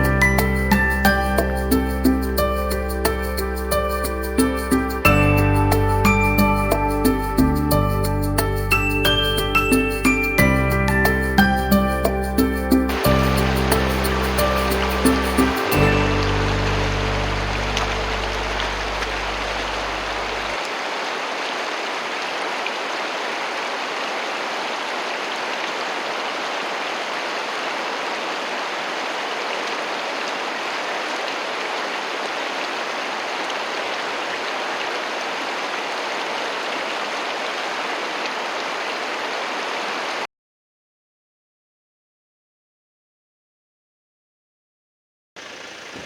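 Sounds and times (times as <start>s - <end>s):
stream water rushing: 0.0s - 7.1s, 10.8s - 40.3s.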